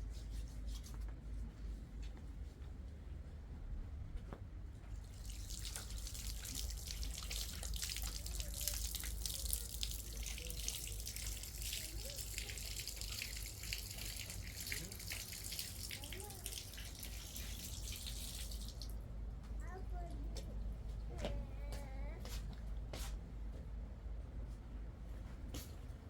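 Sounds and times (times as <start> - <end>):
water running and splashing: 5.0 - 19.0.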